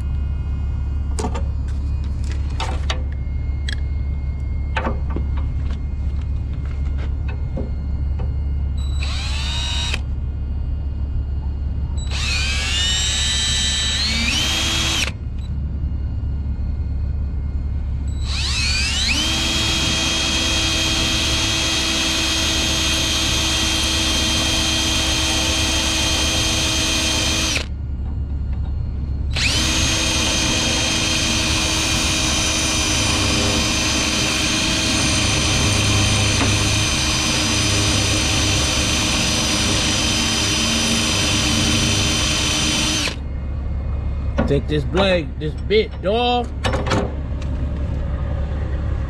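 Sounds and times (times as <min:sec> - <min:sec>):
constant low hum: 0:00.0 - 0:49.0
drill boring through metal: 0:08.8 - 0:10.1, 0:12.0 - 0:15.2, 0:18.1 - 0:27.7, 0:29.3 - 0:43.2.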